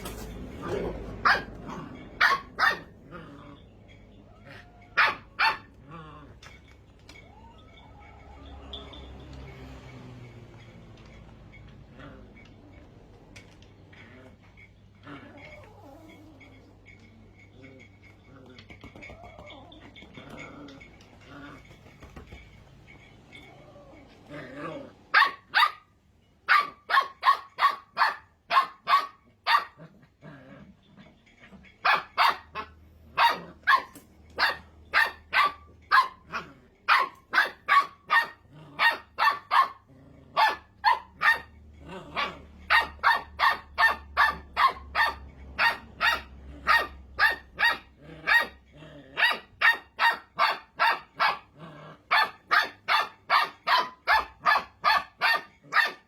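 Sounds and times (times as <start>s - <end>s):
puppy barking: 0.9s - 3.0s, 4.5s - 5.7s, 25.1s - 25.9s, 26.5s - 29.8s, 31.8s - 48.6s, 49.2s - 56.0s.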